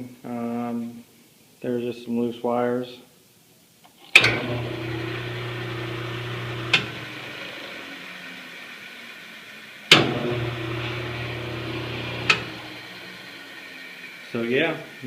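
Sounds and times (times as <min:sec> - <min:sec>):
band saw motor humming: 0:04.2 - 0:09.2, 0:09.9 - 0:15.0
saw coasting down: 0:04.2 - 0:15.0
switch clicking: 0:12.2 - 0:12.6.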